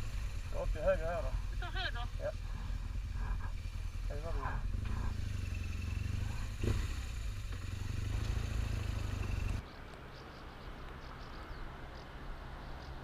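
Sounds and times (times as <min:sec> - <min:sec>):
motorcycle engine rumble: 0:00.0 - 0:09.6.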